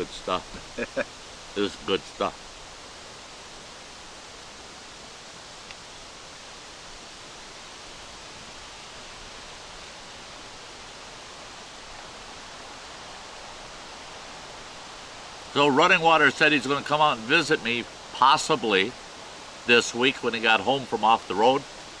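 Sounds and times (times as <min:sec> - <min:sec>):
wind hissing: 0:00.0 - 0:22.0
faint tick: 0:05.6 - 0:05.8.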